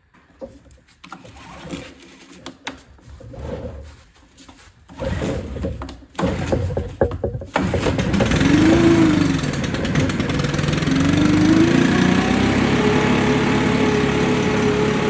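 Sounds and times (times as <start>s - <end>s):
recoil starter pulls: 5.0s - 15.0s
two-stroke engine running: 7.5s - 15.0s.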